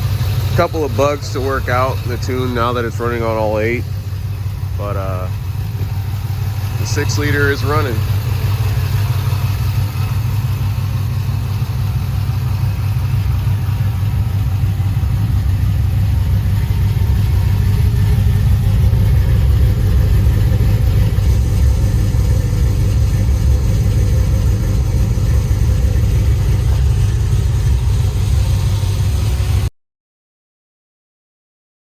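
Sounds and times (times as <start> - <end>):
car engine idling: 0.0 - 29.7.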